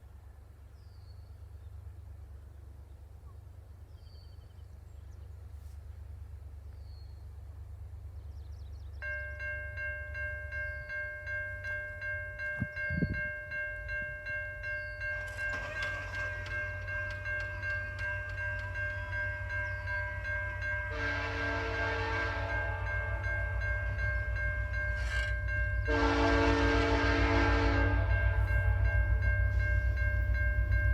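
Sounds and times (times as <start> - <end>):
locomotive rumble: 1.2 - 30.9
railway crossing bell ringing: 8.8 - 30.9
locomotive horn blasts: 15.2 - 24.0, 24.6 - 29.2.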